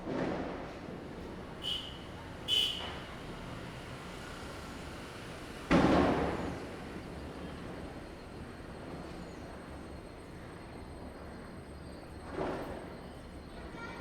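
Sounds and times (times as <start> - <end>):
firecracker bang with echo: 5.7 - 6.6.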